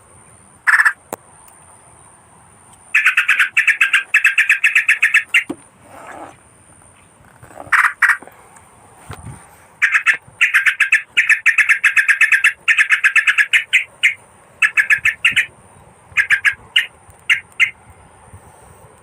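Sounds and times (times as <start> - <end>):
bird chattering call: 0.7 - 1.0, 2.9 - 6.4, 7.6 - 8.2, 9.8 - 15.5, 16.1 - 17.8.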